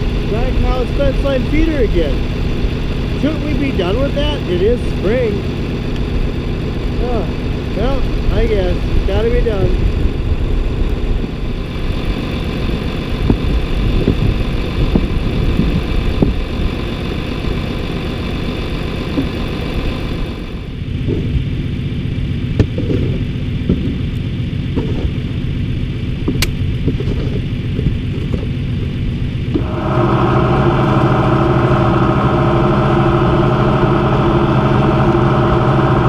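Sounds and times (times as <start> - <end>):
tractor engine running: 0.0 - 36.0
short knocks or clunks: 22.6 - 24.0, 26.2 - 28.6.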